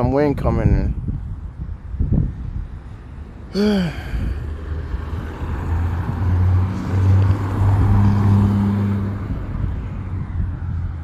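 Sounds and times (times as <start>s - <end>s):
wind gusting over microphone: 0.0s - 11.0s.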